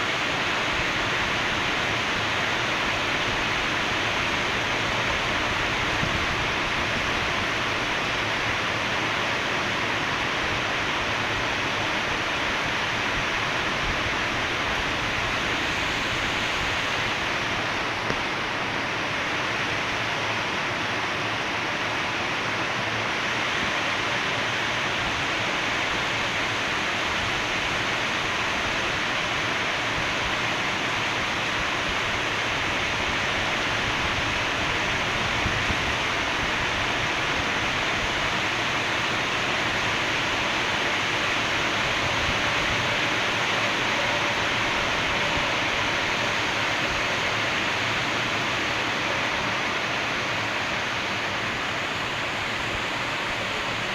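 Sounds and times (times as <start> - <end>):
steady rainfall: 0.0 - 53.9.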